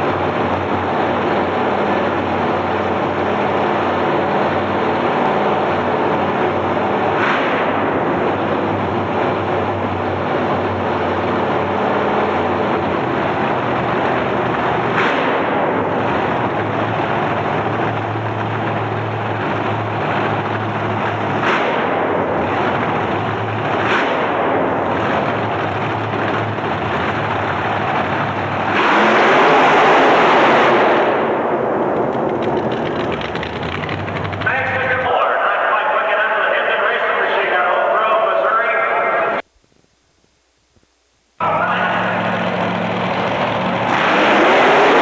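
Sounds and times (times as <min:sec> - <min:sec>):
race truck engine running hard: 0:00.0 - 0:39.4, 0:41.4 - 0:45.0
sharp exhaust pops: 0:14.4 - 0:16.8, 0:17.4 - 0:29.5, 0:31.8 - 0:34.8.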